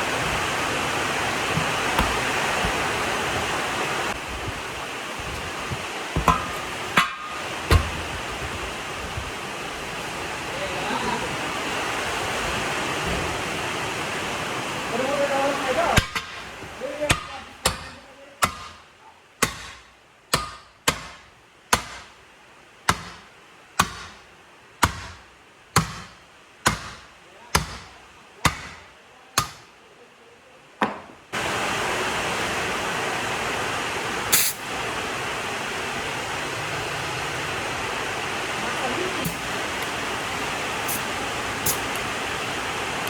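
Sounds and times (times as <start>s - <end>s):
loud rushing hiss: 0.0s - 15.7s, 31.4s - 43.0s.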